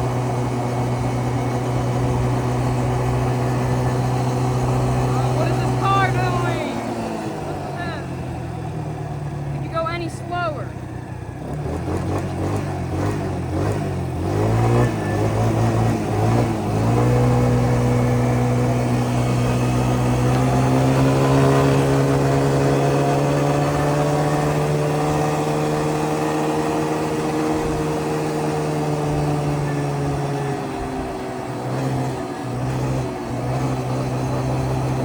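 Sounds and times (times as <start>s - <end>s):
small atv engine running: 0.0s - 35.0s.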